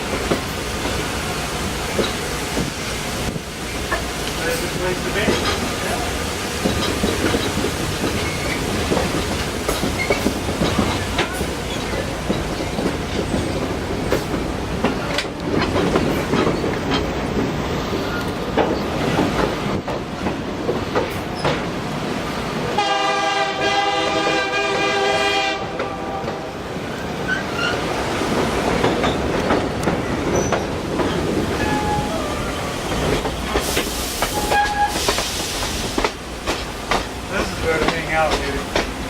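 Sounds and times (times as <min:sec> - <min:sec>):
train rumbling on rails: 0:00.0 - 0:39.0
wheels clicking over rail joints: 0:01.9 - 0:21.8, 0:27.0 - 0:39.0
train horn blast: 0:22.7 - 0:26.6.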